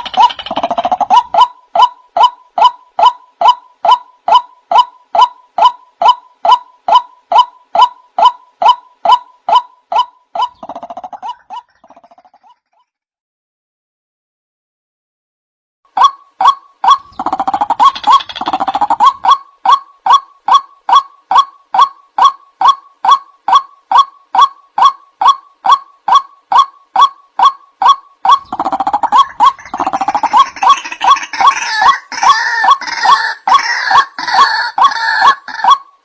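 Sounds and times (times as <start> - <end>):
waterhen calling wak: 16.0 - 35.9.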